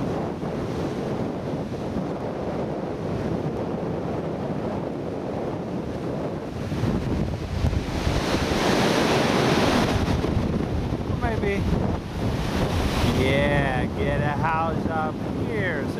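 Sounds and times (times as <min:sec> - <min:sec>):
surf breaking on a beach: 0:00.0 - 0:15.9
wind buffeting microphone: 0:00.0 - 0:15.9.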